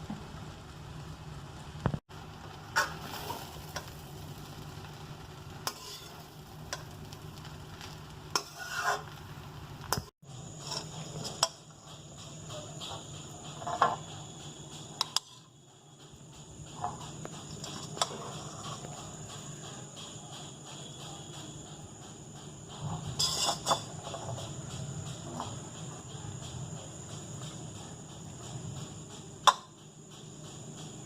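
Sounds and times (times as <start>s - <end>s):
noodles sizzling in a pan: 0.0s - 21.6s, 22.5s - 31.0s
steady low hum: 0.0s - 31.0s
spatula scraping a pan: 5.6s - 7.2s, 7.8s - 9.2s, 10.0s - 11.8s, 12.5s - 14.1s, 15.0s - 15.5s, 16.7s - 19.0s, 22.9s - 24.5s.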